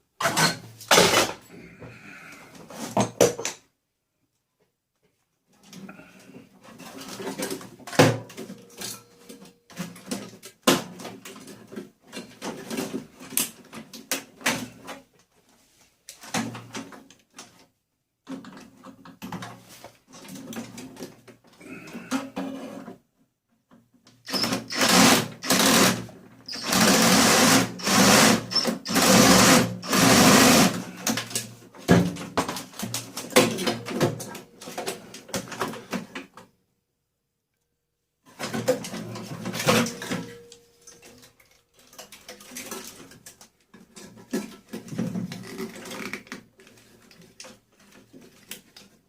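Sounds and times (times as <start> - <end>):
small power tool bursts: 24.3 - 30.8.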